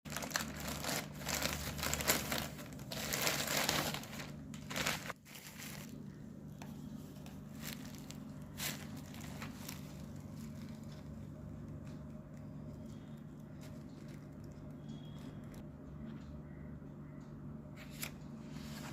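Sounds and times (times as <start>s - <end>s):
wrapping crinkling and rustling: 0.1s - 15.6s
steady low hum: 0.1s - 18.9s.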